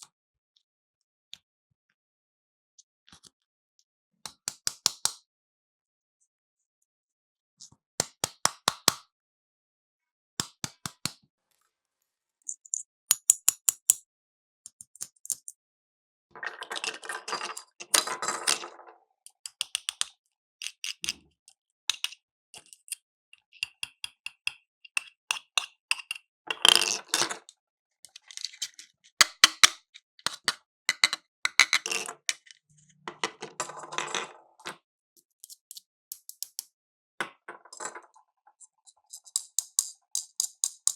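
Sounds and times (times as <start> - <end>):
plastic toy pieces clicking: 35.4 - 36.7, 39.2 - 40.9.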